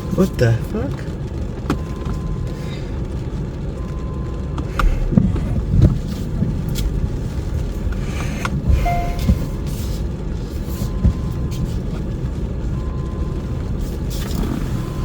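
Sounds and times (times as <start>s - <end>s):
heavy rain: 0.0s - 15.0s
tyre and road rumble: 3.0s - 10.5s.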